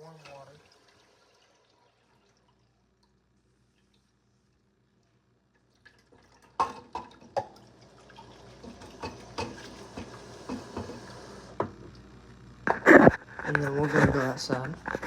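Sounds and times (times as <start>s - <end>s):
water running from a tap: 0.0s - 2.8s, 5.7s - 11.7s.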